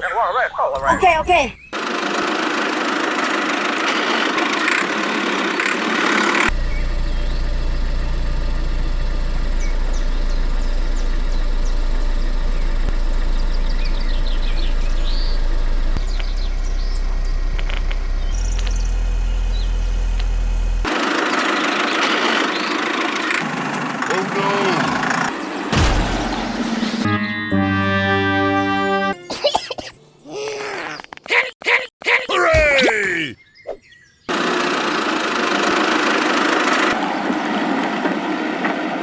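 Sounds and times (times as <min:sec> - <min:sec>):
engine idling: 0:01.8 - 0:27.0.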